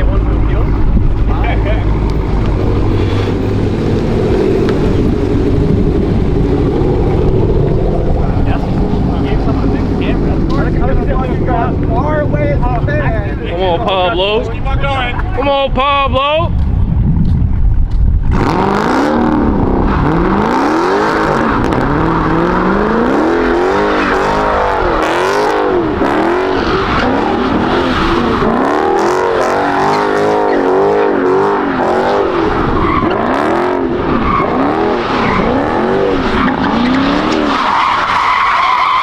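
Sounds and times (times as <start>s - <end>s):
car engine revving: 0.0s - 15.5s, 18.2s - 39.0s
tyres squealing: 34.1s - 39.0s.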